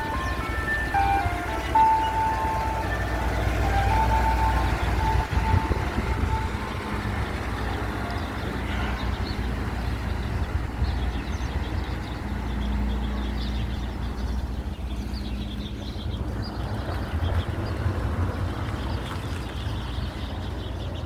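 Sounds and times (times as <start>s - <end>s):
ice cream truck chime tune: 0.0s - 9.4s
vehicle engine rumbling: 0.0s - 21.0s.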